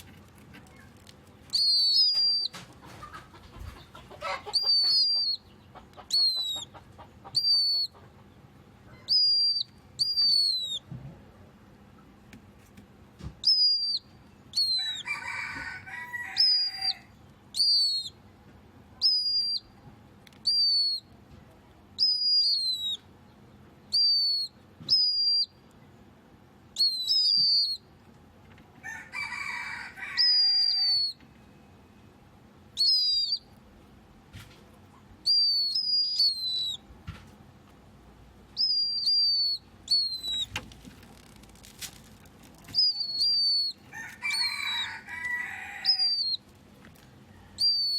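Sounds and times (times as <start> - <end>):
bird whistled calls: 1.5 - 2.6, 4.4 - 5.5, 6.1 - 8.0, 9.0 - 10.9, 13.4 - 15.3, 16.3 - 18.2, 19.0 - 19.7, 20.4 - 21.1, 22.0 - 23.1, 23.9 - 25.6, 26.8 - 27.8, 30.1 - 31.2, 32.8 - 33.5, 35.2 - 36.9, 38.6 - 40.6, 42.7 - 46.4, 47.6 - 47.9.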